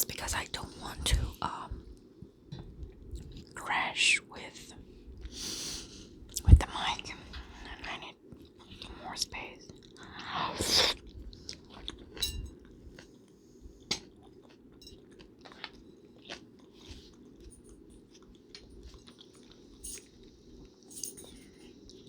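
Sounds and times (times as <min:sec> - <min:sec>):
person chewing and eating: 0:09.6 - 0:22.0.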